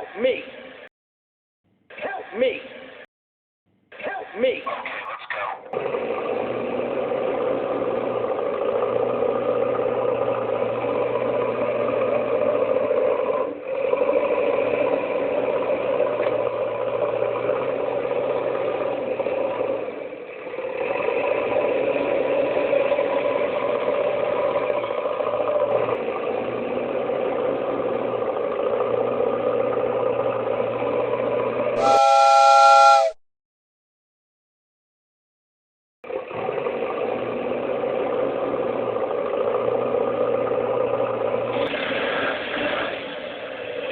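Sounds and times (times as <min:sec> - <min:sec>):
vehicle engine running: 0:05.8 - 0:32.0, 0:36.1 - 0:43.9
horn: 0:31.8 - 0:33.2.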